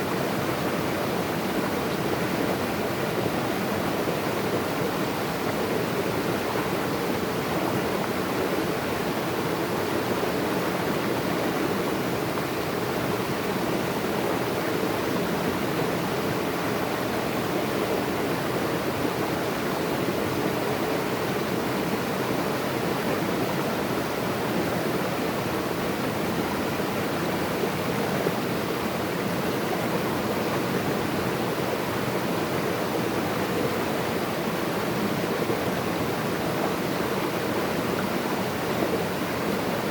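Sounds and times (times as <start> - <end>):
water rushing steadily: 0.0 - 39.9.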